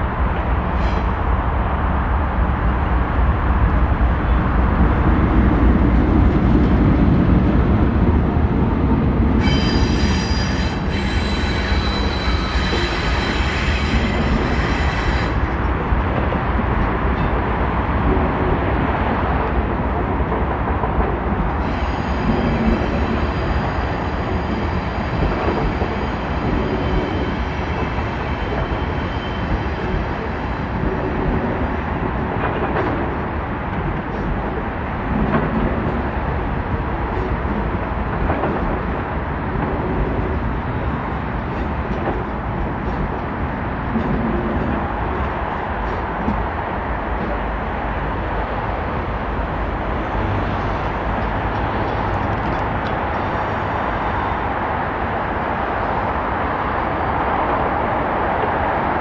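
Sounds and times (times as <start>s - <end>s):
locomotive and wheels rumbling: 0.0s - 59.0s
high metallic wheel squeal: 9.4s - 15.5s, 21.6s - 29.9s.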